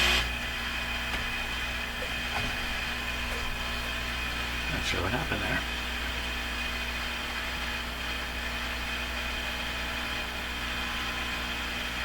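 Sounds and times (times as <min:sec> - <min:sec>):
heat gun blowing whir: 0:00.0 - 0:03.1.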